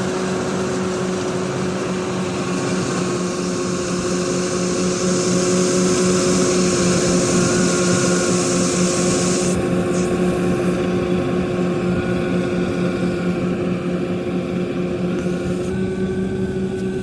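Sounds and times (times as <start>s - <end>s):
combine harvester running: 0.0s - 17.0s
loud hiss: 3.2s - 10.7s.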